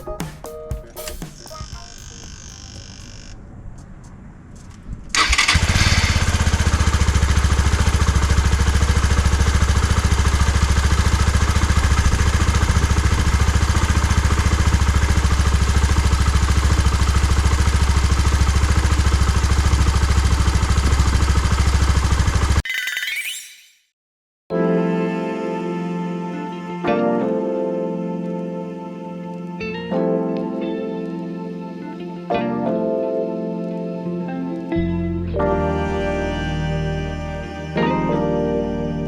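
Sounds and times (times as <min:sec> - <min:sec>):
motorcycle engine starting and idling: 0:05.1 - 0:22.6.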